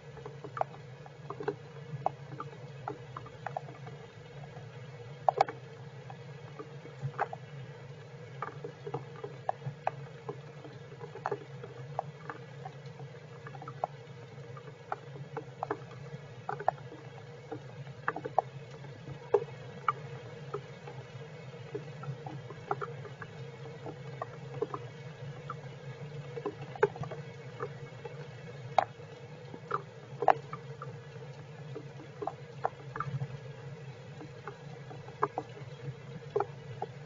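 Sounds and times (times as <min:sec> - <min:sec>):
sharp drips: 0:26.4 - 0:37.0.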